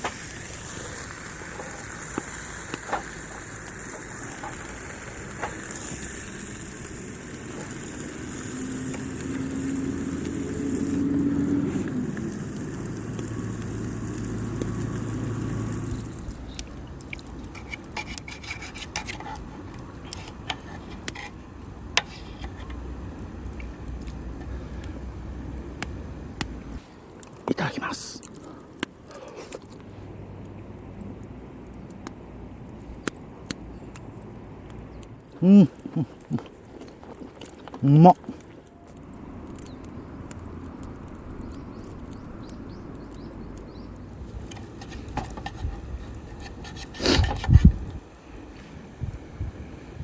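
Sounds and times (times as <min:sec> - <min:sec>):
steak sizzling on griddle: 0:00.0 - 0:19.2, 0:35.2 - 0:47.8
sharp clicks and crackles: 0:00.0 - 0:48.1.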